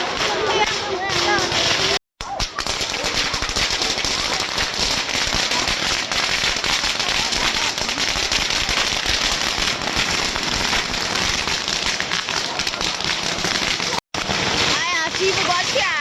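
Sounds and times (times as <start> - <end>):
firecrackers crackling: 0.0 - 16.0.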